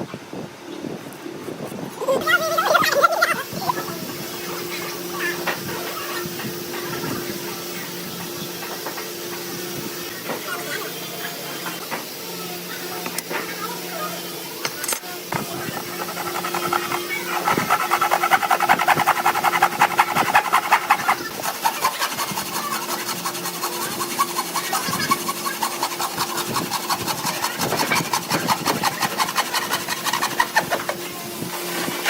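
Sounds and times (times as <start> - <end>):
hand tool scraping wood: 14.7 - 32.0.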